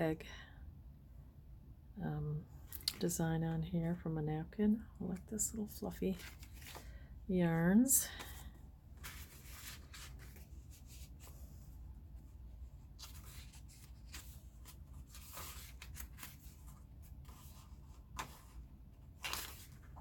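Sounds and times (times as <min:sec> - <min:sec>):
paper pages rustling: 0:06.1 - 0:07.0, 0:08.2 - 0:20.0.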